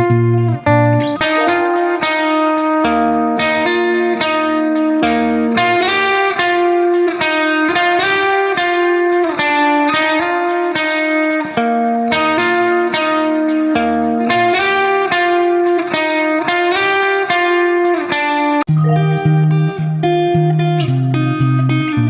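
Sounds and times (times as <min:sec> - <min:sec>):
low bass line: 0:00.0 - 0:01.8, 0:18.7 - 0:20.0
plucked guitar notes: 0:00.0 - 0:07.4, 0:18.7 - 0:22.0.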